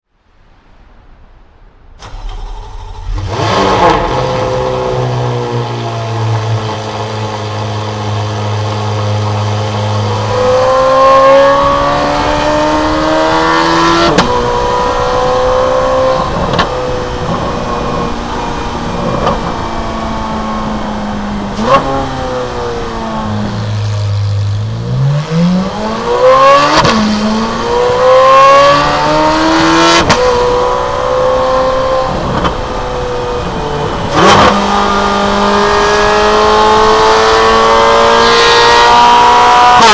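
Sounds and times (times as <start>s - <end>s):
car engine idling: 2.0s - 10.9s, 14.2s - 26.0s, 30.4s - 36.2s
car engine revving through gears: 2.0s - 39.9s.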